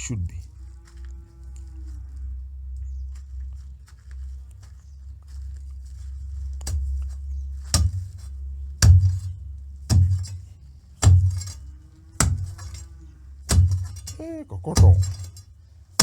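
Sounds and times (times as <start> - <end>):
metal tool striking stony ground: 7.7 - 8.1, 8.8 - 10.4, 11.0 - 16.0.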